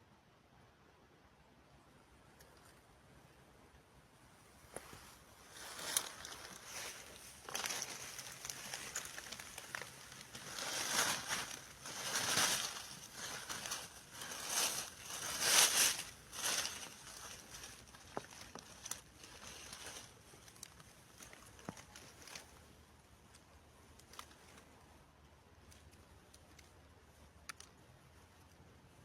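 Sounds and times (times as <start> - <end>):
rustling in dry leaves: 4.7 - 25.0.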